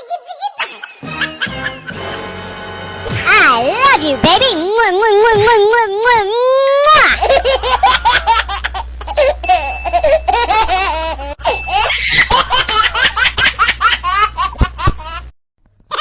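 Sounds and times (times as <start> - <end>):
young child laughing: 0.0 - 1.5, 6.4 - 15.3
steady low hum: 2.0 - 15.9.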